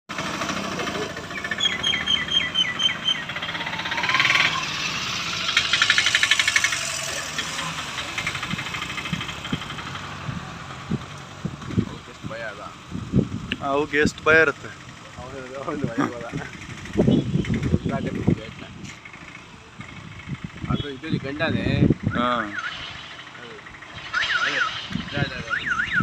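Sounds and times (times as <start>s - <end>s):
vehicle engine idling: 0.1s - 26.0s
bird calling falling notes: 1.2s - 7.0s
bird rattling trill: 1.3s - 7.1s.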